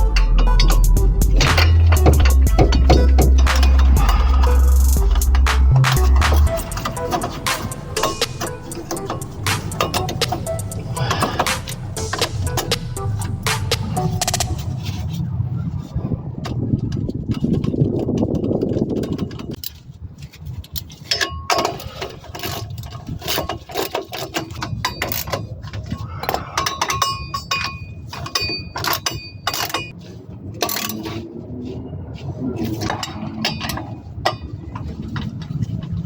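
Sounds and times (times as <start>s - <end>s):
metal tools clinking: 0.0s - 15.2s, 15.8s - 31.4s, 32.6s - 36.0s
low hum: 0.0s - 18.8s.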